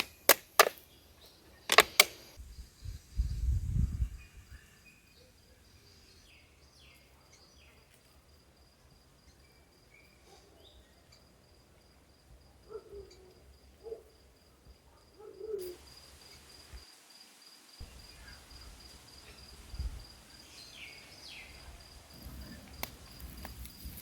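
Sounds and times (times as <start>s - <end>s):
high insect trill: 15.7s - 24.0s.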